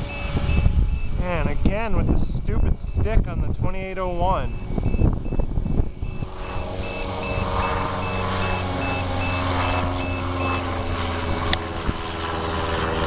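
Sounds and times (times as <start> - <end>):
high motor whine: 0.0 - 13.0
rc helicopter rotor hum: 0.0 - 13.0
faint high beep: 4.4 - 13.0.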